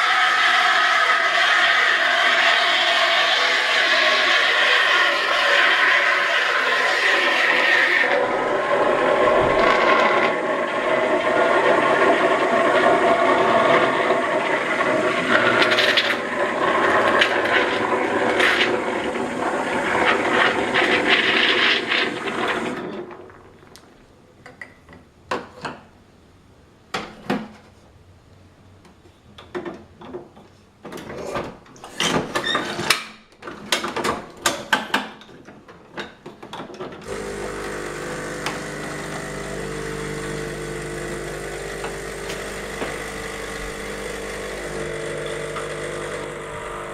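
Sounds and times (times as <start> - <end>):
coffee grinder running: 0.0 - 22.8, 37.0 - 46.9
brewing mechanism clicks and clunks: 29.4 - 46.9
pump humming: 37.0 - 46.9.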